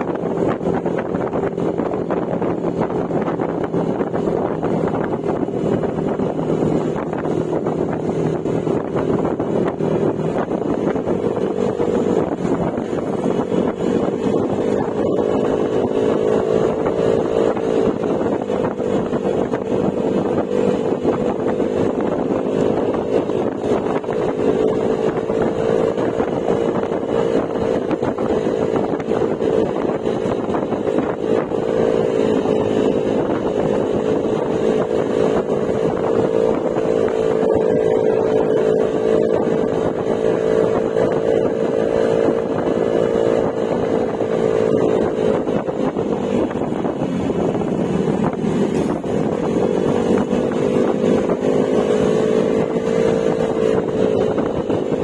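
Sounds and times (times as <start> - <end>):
scooter engine droning: 0.0 - 55.0
wind noise: 0.0 - 55.0.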